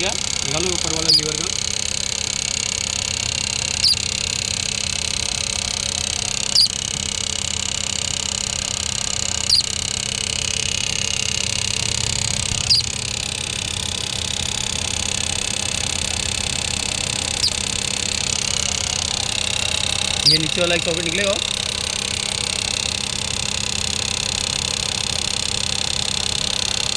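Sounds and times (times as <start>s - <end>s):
high chirp dropping in pitch: 0.0s - 1.6s, 3.6s - 4.3s, 6.3s - 6.9s, 9.4s - 9.8s, 12.4s - 13.2s, 17.2s - 17.8s, 20.1s - 21.4s
car engine idling: 0.0s - 26.9s.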